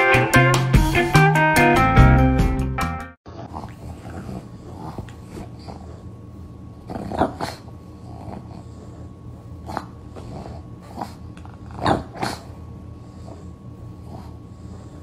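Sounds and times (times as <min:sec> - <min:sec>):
dog grunting and growling: 0:03.3 - 0:06.2, 0:06.8 - 0:15.0.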